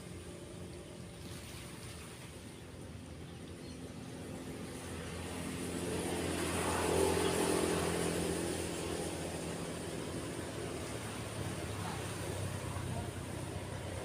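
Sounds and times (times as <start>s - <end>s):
waves washing: 0.0s - 3.2s, 4.4s - 14.0s
vehicle engine passing by: 3.4s - 14.0s.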